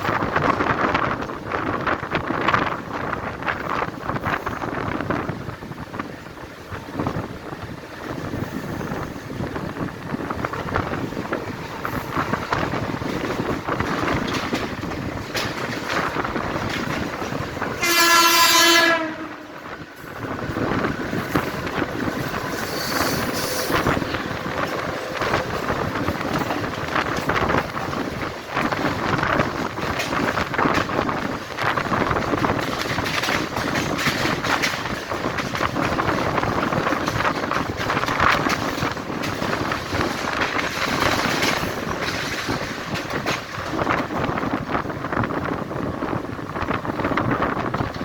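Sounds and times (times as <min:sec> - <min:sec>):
train rattling: 0:00.0 - 0:48.0
train horn blast: 0:17.8 - 0:19.6.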